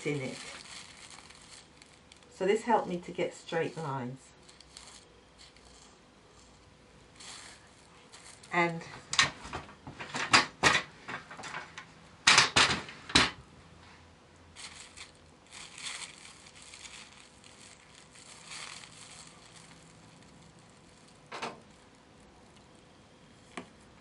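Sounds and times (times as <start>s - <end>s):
paper crinkling: 0.0s - 9.0s, 14.6s - 22.8s.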